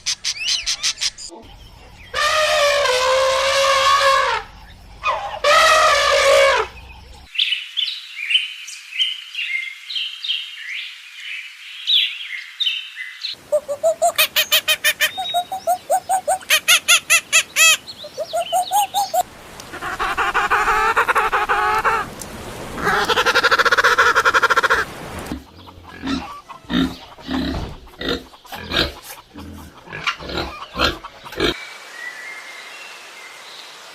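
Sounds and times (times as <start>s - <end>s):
long wavering animal calls: 2.1s - 7.1s, 13.4s - 27.3s
fast repeated calls: 13.4s - 22.1s
high bird chirping: 13.5s - 19.2s.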